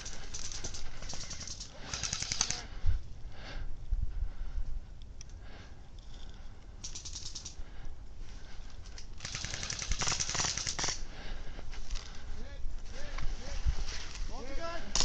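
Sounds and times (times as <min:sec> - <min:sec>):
airsoft rifle firing bursts: 0:00.0 - 0:02.7, 0:09.2 - 0:11.0.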